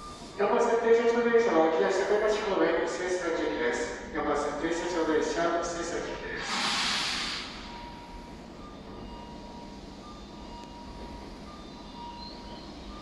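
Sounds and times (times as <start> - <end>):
train approaching in the distance: 0.0 - 13.0
short hiss: 6.4 - 7.6.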